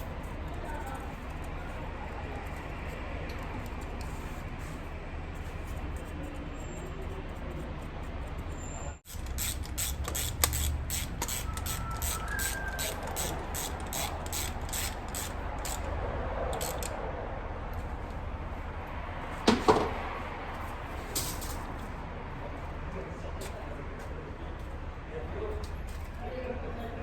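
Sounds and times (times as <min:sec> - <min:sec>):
ratchet wrench clicking: 0:09.0 - 0:17.0
metallic clatter of parts: 0:21.1 - 0:21.7.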